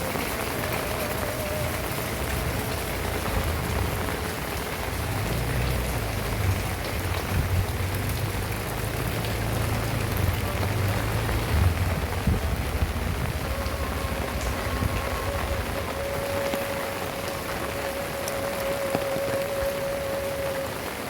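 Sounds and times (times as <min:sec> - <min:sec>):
heavy rain falling: 0:00.0 - 0:21.0
low wavering rumble: 0:09.6 - 0:17.8.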